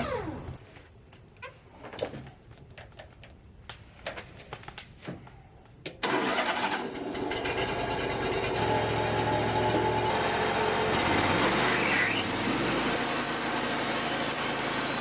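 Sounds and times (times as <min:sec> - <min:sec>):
engine starting and running: 0:06.0 - 0:15.0.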